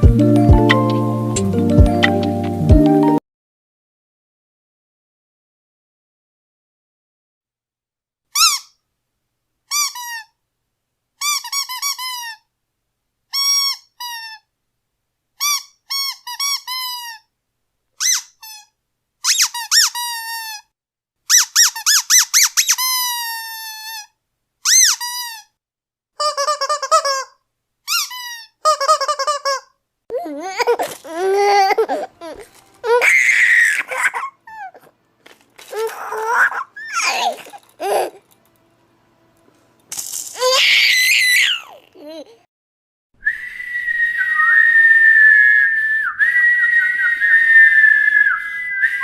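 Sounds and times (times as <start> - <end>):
squeaky toy squeaking: 8.3 - 8.8, 9.7 - 10.3, 11.2 - 12.5, 13.3 - 14.5, 15.4 - 17.3, 18.0 - 20.7, 21.3 - 25.5, 26.2 - 29.8, 30.5 - 34.9, 35.7 - 38.2, 40.4 - 42.2.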